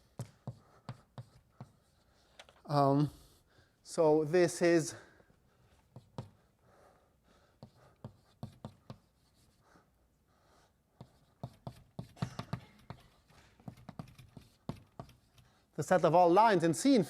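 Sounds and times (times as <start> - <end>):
chalk tapping on blackboard: 0.1 - 2.0, 5.9 - 6.4, 7.6 - 9.6, 11.0 - 15.6
chalk scraping on blackboard: 0.1 - 2.3, 7.6 - 9.8, 10.5 - 15.7.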